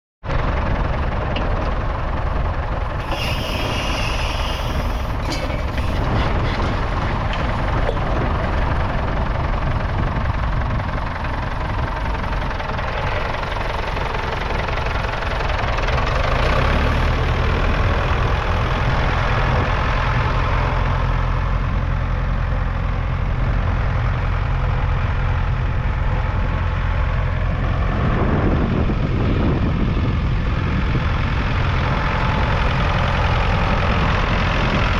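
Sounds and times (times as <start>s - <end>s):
tractor diesel engine running: 0.2s - 34.9s
brief hiss: 3.0s - 6.0s.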